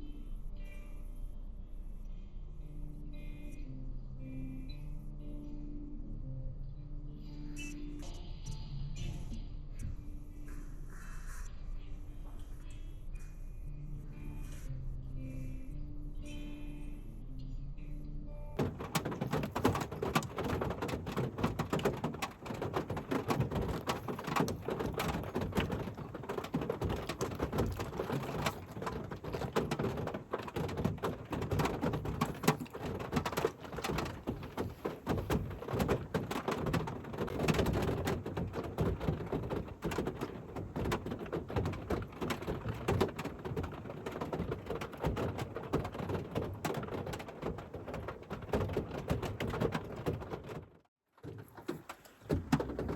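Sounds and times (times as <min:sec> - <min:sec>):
rain falling: 0:18.6 - 0:50.6.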